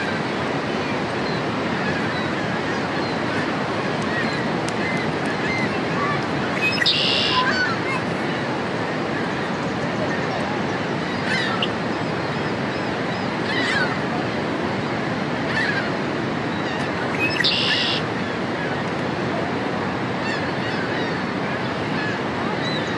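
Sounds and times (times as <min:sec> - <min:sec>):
loud buzzy bird trill: 0:06.6 - 0:07.5, 0:17.1 - 0:18.0
blackbird sweeping calls: 0:06.6 - 0:07.6, 0:17.1 - 0:18.0.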